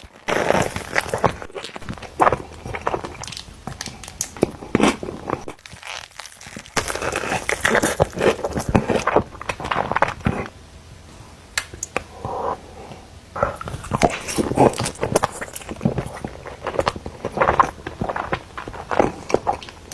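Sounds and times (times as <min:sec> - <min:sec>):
paper wrappers crinkling: 0:00.0 - 0:10.5
chewing and crunching food: 0:00.0 - 0:10.6, 0:11.6 - 0:19.9.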